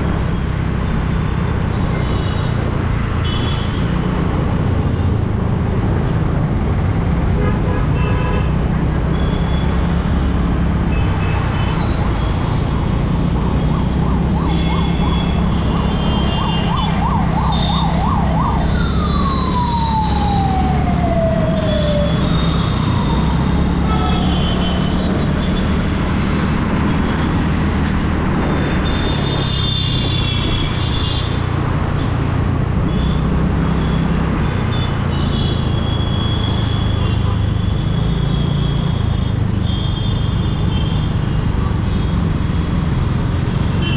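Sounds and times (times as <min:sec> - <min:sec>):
road traffic rumble: 0:00.0 - 0:43.9
emergency vehicle siren: 0:11.6 - 0:25.6.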